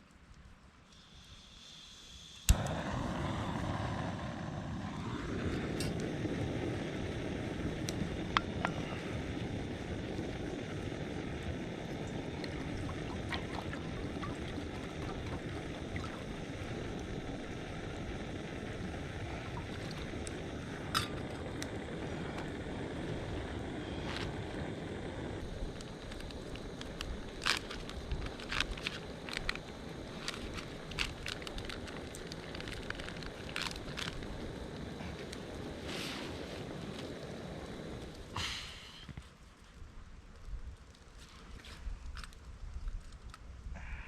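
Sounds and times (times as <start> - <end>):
campfire burning: 0.0 - 44.0.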